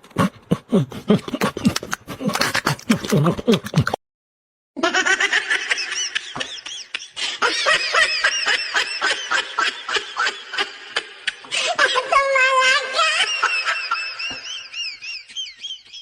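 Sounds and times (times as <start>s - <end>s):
high-pitched laughter: 4.8s - 16.0s.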